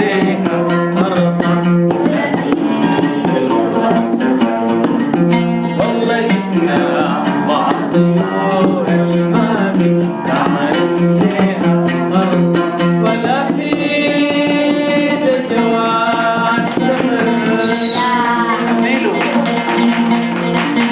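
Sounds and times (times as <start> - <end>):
drum beat: 0.0 - 20.9
plucked strings: 0.0 - 20.9
live band music: 15.7 - 20.9.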